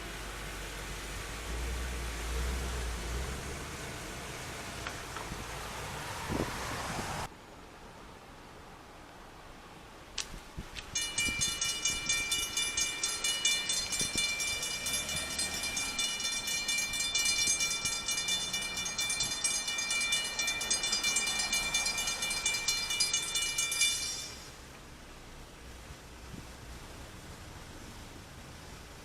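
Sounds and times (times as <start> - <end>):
railroad crossing bell ringing: 10.9 - 24.6.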